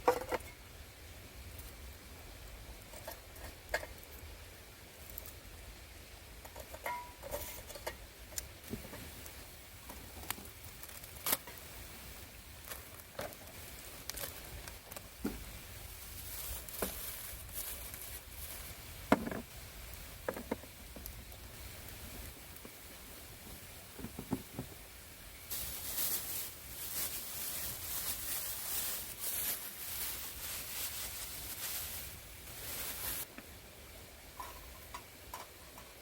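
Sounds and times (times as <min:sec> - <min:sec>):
objects being handled: 0:06.4 - 0:11.7, 0:12.6 - 0:22.8, 0:25.5 - 0:33.3.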